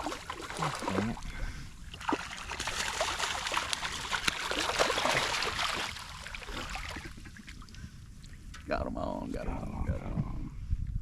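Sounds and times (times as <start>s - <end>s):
fish splashing in shallow water: 0.0s - 8.7s.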